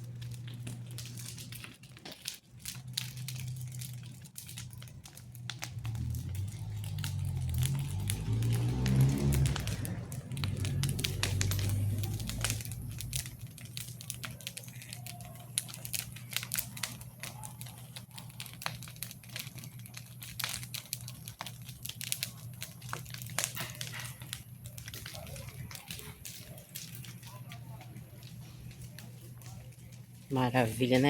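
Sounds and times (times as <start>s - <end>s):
bonfire crackling and popping: 0.0s - 31.0s
steady low hum: 9.5s - 14.2s.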